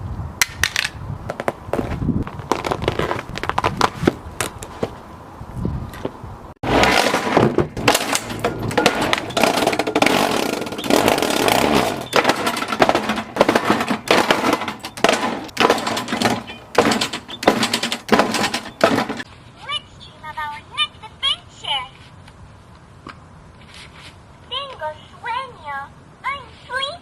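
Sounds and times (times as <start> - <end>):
lawnmower running: 6.6 - 19.2
plastic cracking and clattering: 6.7 - 19.3.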